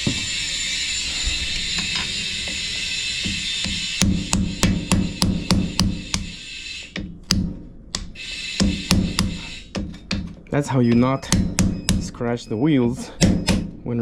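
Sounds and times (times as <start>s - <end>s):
hammer striking metal wheel rim: 3.3s - 6.3s, 7.0s - 12.1s.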